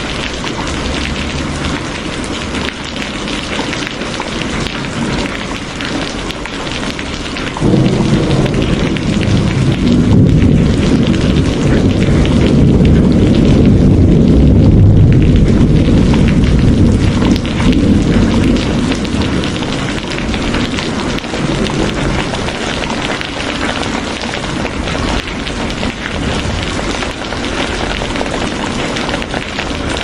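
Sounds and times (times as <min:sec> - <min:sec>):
heavy rain falling: 0:00.0 - 0:30.0
low thunder rumble: 0:07.0 - 0:30.0.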